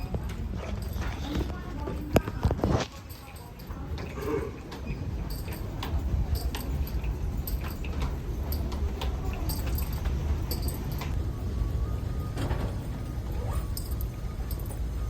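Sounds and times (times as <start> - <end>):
irregular clicks and rattles: 0.0 - 11.6, 12.2 - 15.0
steady low rumble: 3.7 - 15.0.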